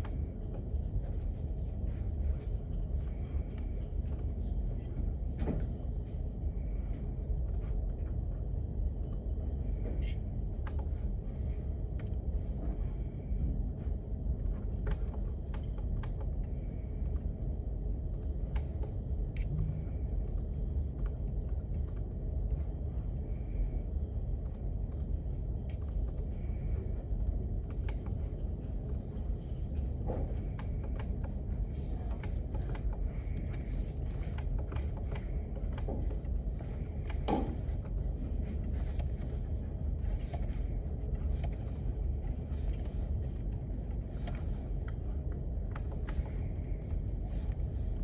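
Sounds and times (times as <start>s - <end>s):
low background rumble: 0.0s - 48.0s
keyboard typing clicks: 10.6s - 11.0s, 27.2s - 28.2s, 30.3s - 38.1s.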